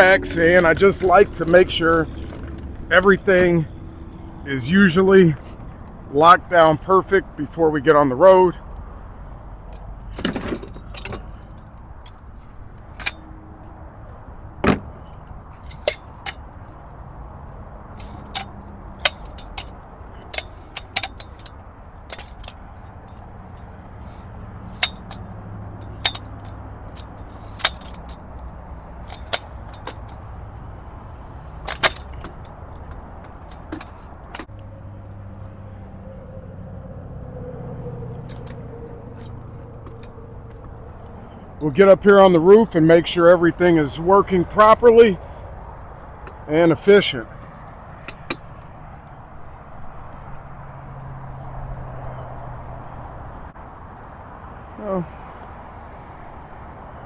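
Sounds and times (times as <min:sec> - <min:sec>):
low hum of vehicles: 0:00.0 - 0:57.0.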